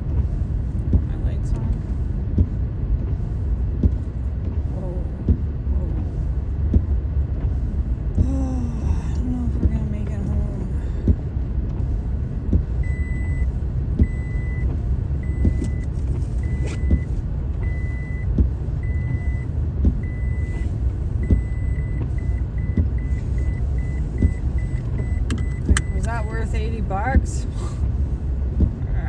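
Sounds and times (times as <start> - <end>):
car cabin rumble: 0.0 - 29.0
electronic warning beeps: 12.8 - 26.4.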